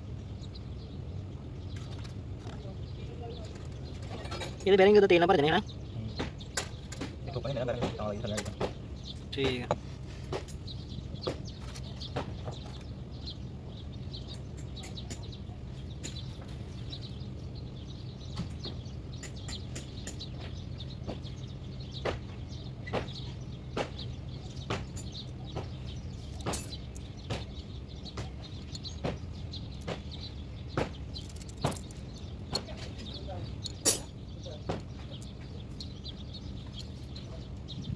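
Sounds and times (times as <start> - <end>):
hand tools clicking and tapping metal: 6.2 - 12.9, 14.2 - 17.2, 18.3 - 21.4, 22.0 - 35.9.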